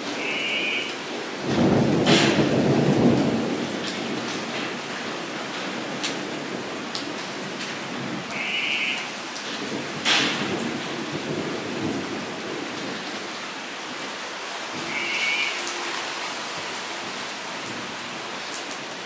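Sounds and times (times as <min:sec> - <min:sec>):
rain pattering on a puddle: 0:00.0 - 0:19.0
thunder crack and rumble: 0:01.2 - 0:08.4, 0:09.0 - 0:15.0.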